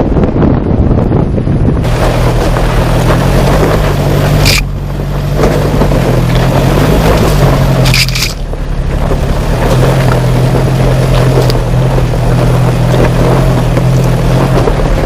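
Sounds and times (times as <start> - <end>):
engine humming under load: 0.0 - 15.0
rushing wind: 0.0 - 15.0.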